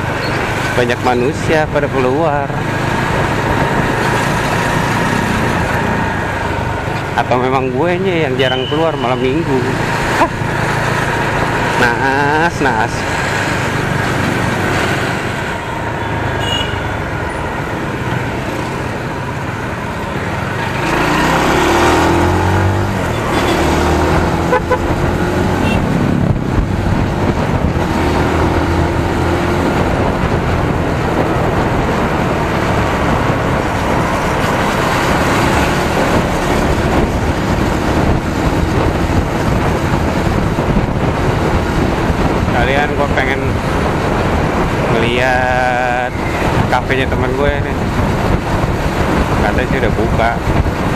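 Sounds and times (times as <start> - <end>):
wind rush: 0.0 - 16.2, 17.3 - 50.9
surrounding traffic: 0.0 - 50.9.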